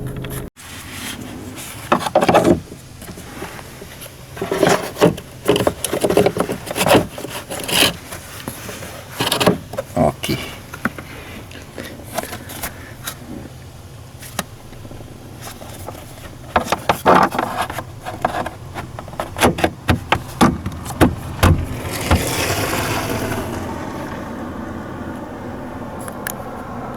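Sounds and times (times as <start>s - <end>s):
diesel engine starting and idling: 0.0s - 0.5s, 19.7s - 26.9s.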